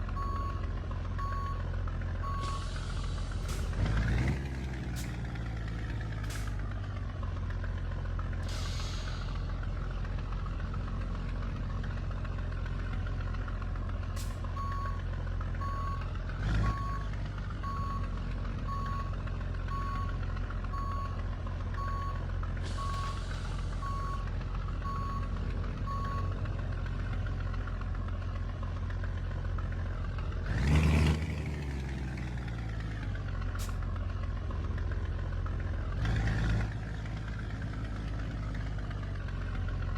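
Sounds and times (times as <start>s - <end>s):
diesel truck engine running: 0.0s - 39.9s
reversing alarm beeping: 0.2s - 0.6s, 1.2s - 1.6s, 2.2s - 2.8s, 15.6s - 18.1s, 18.7s - 21.2s, 21.8s - 22.2s, 22.8s - 25.3s, 25.9s - 26.3s.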